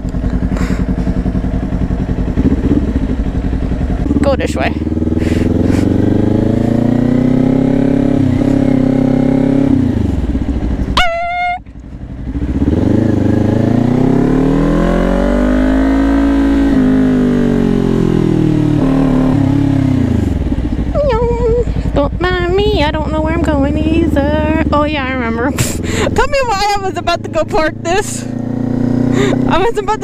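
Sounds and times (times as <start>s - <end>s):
motorcycle engine revving: 0.0s - 30.0s
short high-pitched tone: 11.0s - 11.7s.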